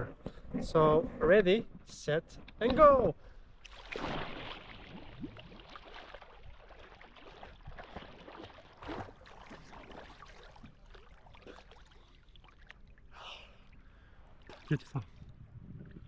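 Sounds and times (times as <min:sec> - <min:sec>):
water splashing around swimmer: 0:03.6 - 0:13.8, 0:14.4 - 0:15.3.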